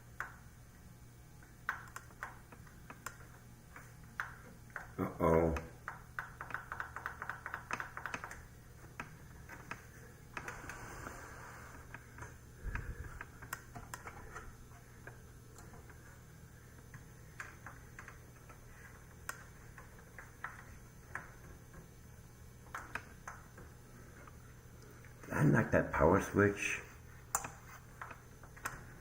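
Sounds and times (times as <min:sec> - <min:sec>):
steady low hum: 0:00.0 - 0:29.0
clicks and taps on computer: 0:00.2 - 0:00.4, 0:01.4 - 0:10.6, 0:16.9 - 0:21.8, 0:22.7 - 0:24.4, 0:27.3 - 0:28.9.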